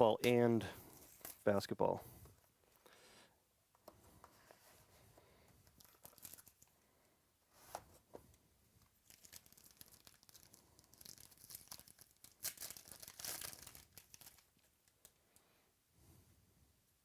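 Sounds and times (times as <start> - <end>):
faint wrapper crinkling and tearing: 5.6 - 6.8, 8.8 - 15.2.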